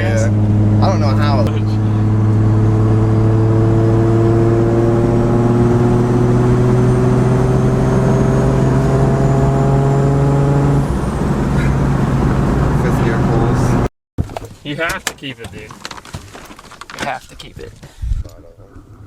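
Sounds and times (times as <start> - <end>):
car engine pulling under load: 0.0 - 13.9.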